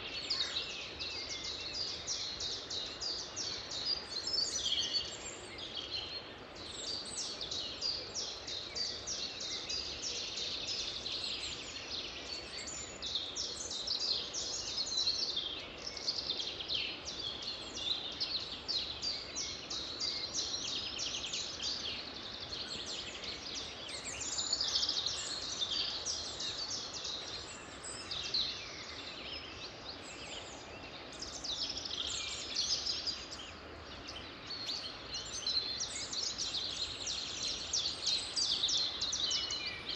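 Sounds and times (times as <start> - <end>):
songbirds chirping and trilling: 0.0 - 39.9
steady background hiss: 0.0 - 39.9.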